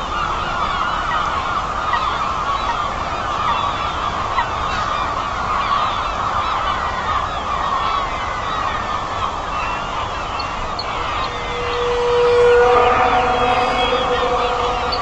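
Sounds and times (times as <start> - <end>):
geese honking: 9.2 - 15.0.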